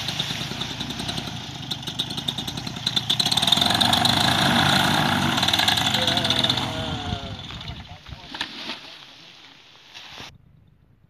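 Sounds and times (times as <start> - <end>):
small engine running: 0.0 - 7.6.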